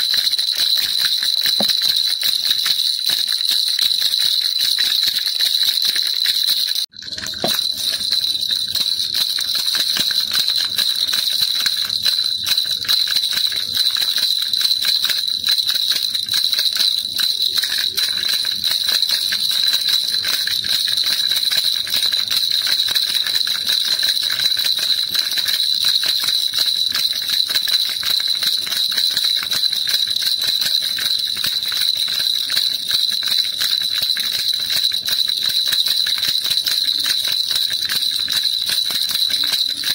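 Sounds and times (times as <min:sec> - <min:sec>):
baby rattle jingling: 0:00.0 - 0:39.9.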